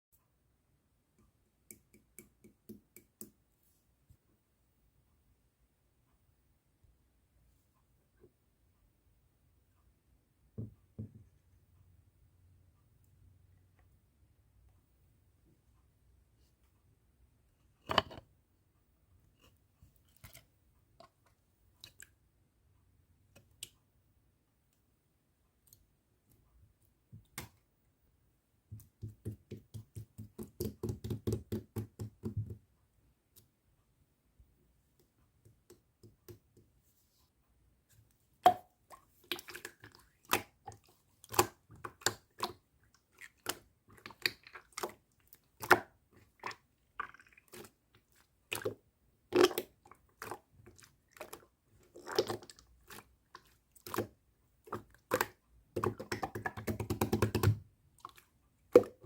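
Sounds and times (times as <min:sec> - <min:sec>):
slime squishing: 0:38.5 - 0:59.0.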